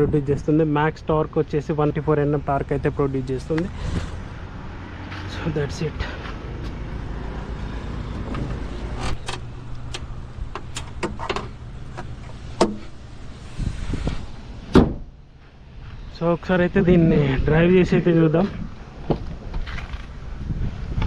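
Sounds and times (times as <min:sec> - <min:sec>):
clicks and knocks on car body: 0:10.6 - 0:12.9
car door slam: 0:14.7 - 0:15.2.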